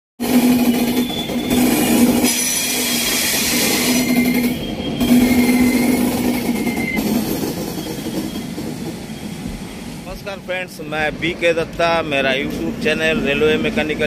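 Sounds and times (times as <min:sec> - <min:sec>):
train wheels on rail: 0:00.2 - 0:14.0
high wheel squeals: 0:00.3 - 0:10.5.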